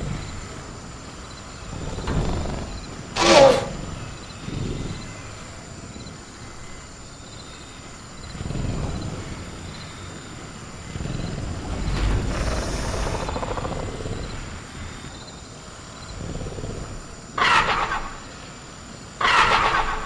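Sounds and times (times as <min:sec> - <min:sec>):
crickets chirping: 0:00.0 - 0:20.0
creature growling: 0:01.7 - 0:05.5, 0:10.7 - 0:15.0.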